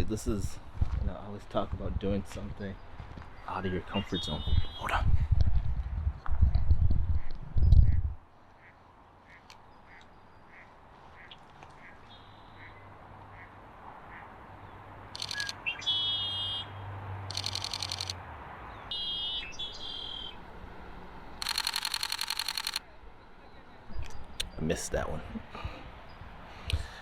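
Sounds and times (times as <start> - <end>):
camera shutter bursts: 15.2 - 15.6, 17.3 - 18.2, 21.4 - 22.8
soft repeating call: 15.2 - 16.7, 18.9 - 20.4.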